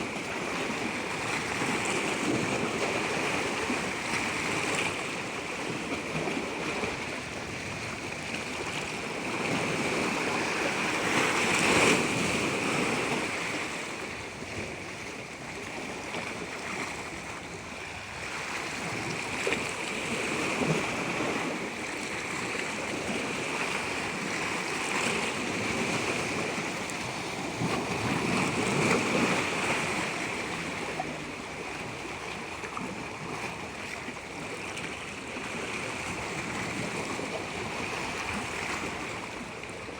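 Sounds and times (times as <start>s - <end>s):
water rushing: 15.3s - 39.9s.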